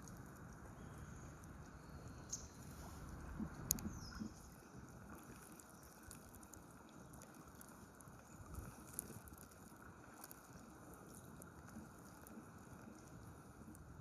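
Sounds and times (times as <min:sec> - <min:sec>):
flowing river water: 0:00.0 - 0:14.0
light ticks: 0:03.4 - 0:04.3.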